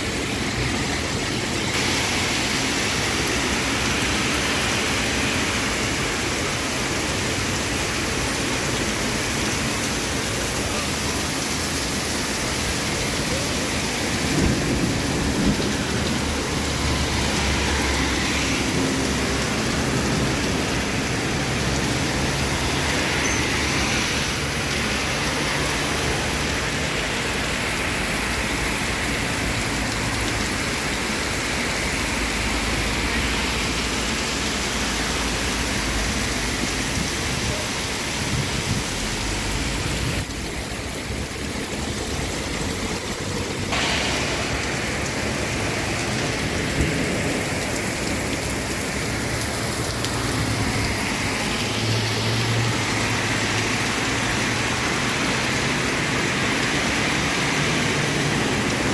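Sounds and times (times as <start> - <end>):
heavy rain pouring: 0.0 - 58.9
low rumbles of thunder: 14.1 - 17.3.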